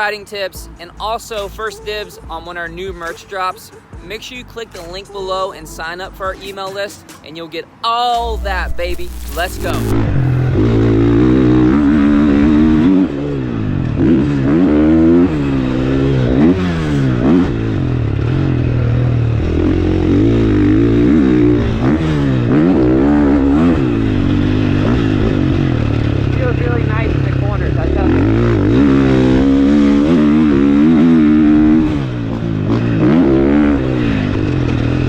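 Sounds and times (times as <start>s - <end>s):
motocross bike engine revving: 8.2s - 35.0s.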